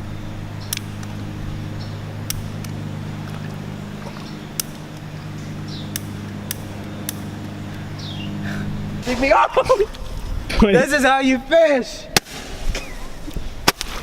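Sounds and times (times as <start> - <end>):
low motor hum: 0.0 - 11.0
sharp short clicks: 5.8 - 7.8.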